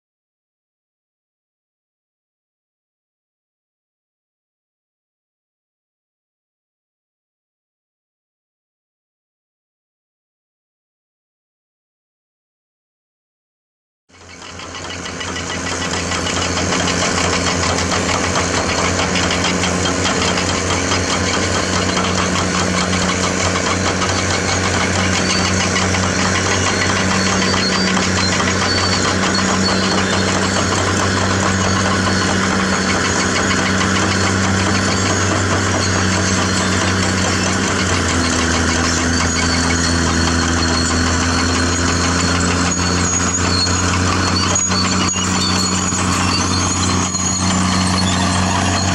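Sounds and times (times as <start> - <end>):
bulldozer diesel engine clattering: 14.2 - 48.9.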